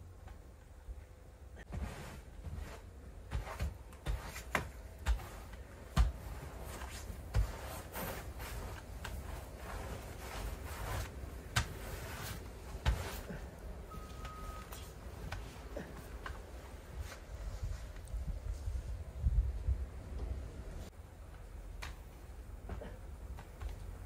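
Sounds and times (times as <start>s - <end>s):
shovel scraping and swishing snow: 1.6s - 13.5s.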